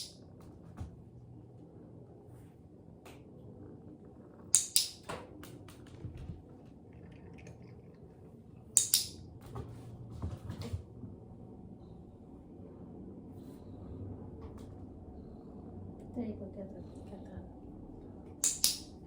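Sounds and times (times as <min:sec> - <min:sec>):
sharp clicks: 0:04.6 - 0:05.6, 0:08.8 - 0:09.2, 0:18.4 - 0:19.0.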